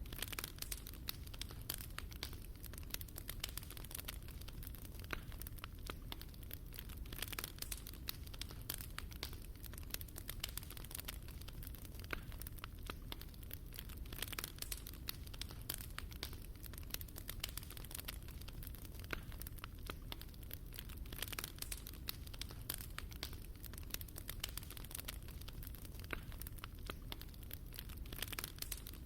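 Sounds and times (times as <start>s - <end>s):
fire low rumble: 0.0s - 29.0s
wood fire crackling and popping: 0.0s - 29.0s.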